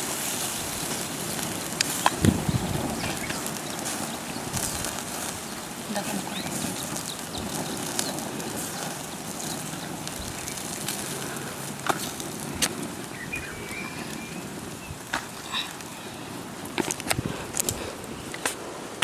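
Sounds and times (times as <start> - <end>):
steady rushing noise: 0.0 - 19.0
bird chirp: 0.4 - 16.4.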